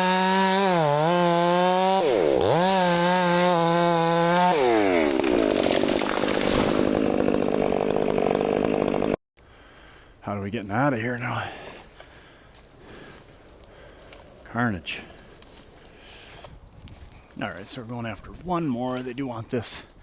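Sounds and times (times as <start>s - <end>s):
chainsaw cutting wood: 0.0s - 9.2s.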